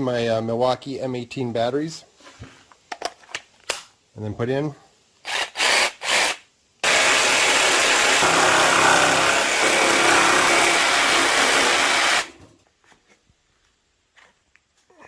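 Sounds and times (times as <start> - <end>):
cordless jigsaw cutting: 5.3 - 12.4.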